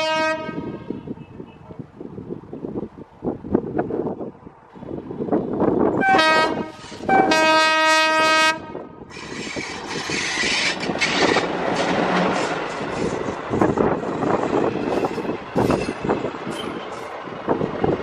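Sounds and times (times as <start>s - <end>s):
locomotive horn blasts: 0.0s - 1.0s, 6.0s - 8.9s
wheels clattering over rail joints: 9.1s - 18.0s.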